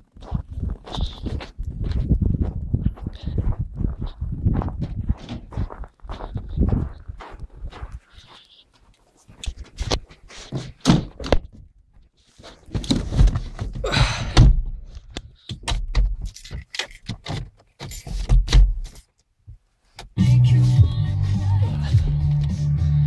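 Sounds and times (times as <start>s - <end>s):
keys jingling: 16.3s - 19.1s.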